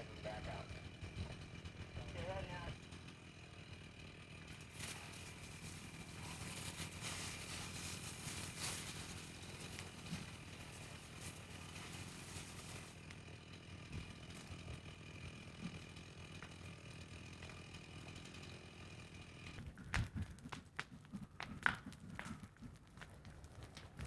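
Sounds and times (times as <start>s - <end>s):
crunching footsteps: 4.2s - 16.6s, 19.6s - 24.0s.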